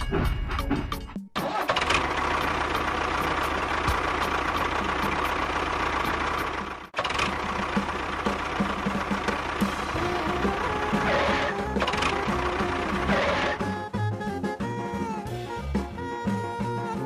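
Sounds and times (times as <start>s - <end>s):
miniature tractor engine running: 1.4s - 13.6s.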